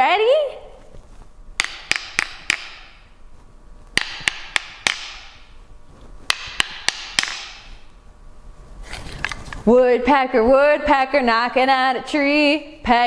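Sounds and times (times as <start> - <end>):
sharp taps on hard object: 1.6 - 3.0, 4.0 - 5.4, 6.3 - 7.8.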